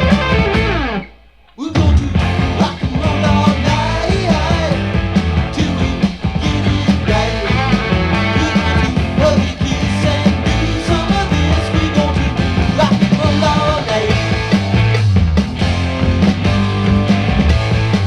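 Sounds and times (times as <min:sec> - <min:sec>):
rock song from vinyl record: 0:00.0 - 0:18.0.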